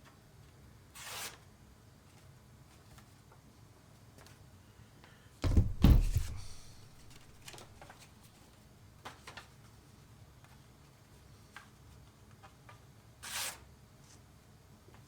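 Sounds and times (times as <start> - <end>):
heavy thumps: 5.4 - 7.6.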